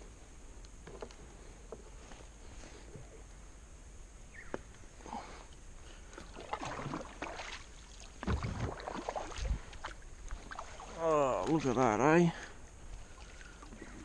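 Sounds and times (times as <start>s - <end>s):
paddle strokes splashing water: 6.0s - 14.0s.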